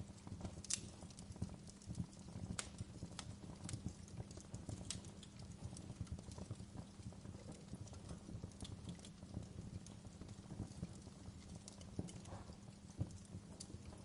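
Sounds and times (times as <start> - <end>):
fire crackling and popping: 0.0 - 14.0
low rumble of burning: 0.0 - 14.0.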